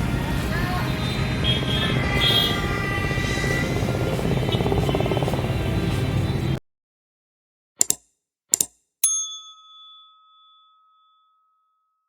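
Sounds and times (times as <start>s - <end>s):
background music: 0.0s - 6.6s
quick double clicks: 7.8s - 8.8s
bell ding: 9.0s - 12.0s.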